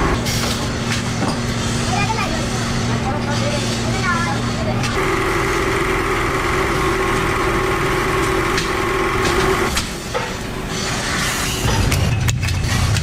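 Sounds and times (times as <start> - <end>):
motor humming: 4.7 - 10.0.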